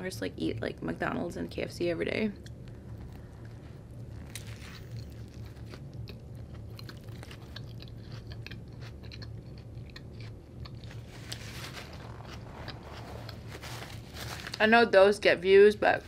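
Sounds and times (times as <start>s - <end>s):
chewing food: 2.4s - 13.7s.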